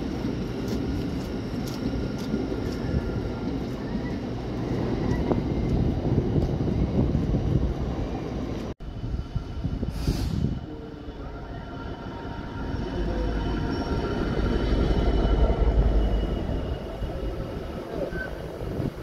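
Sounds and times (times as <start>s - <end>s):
freight wagons running: 0.0s - 8.7s
diesel locomotive engine rumble: 0.0s - 19.0s.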